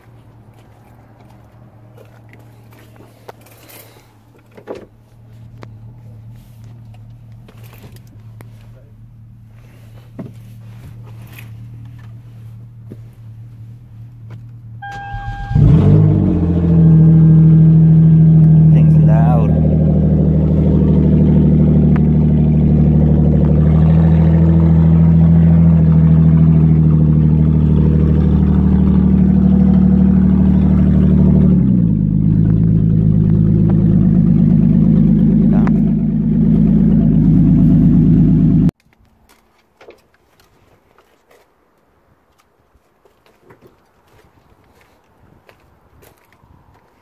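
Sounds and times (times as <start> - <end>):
car engine idling: 1.8 - 38.8.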